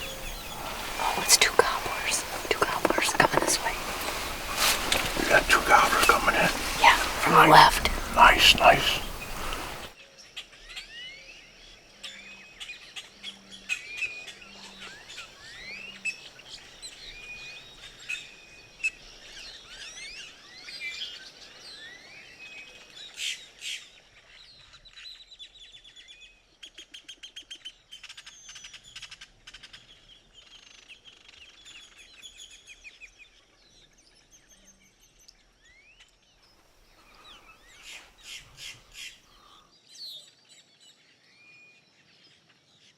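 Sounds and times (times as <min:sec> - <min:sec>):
small birds chirping and singing: 0:00.0 - 0:09.9.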